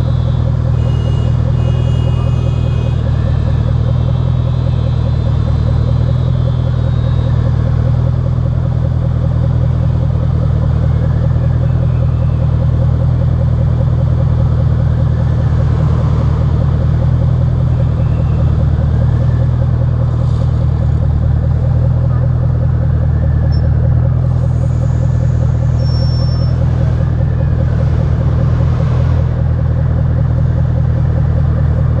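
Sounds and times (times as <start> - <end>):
car engine exhaust running steadily: 0.0 - 32.0.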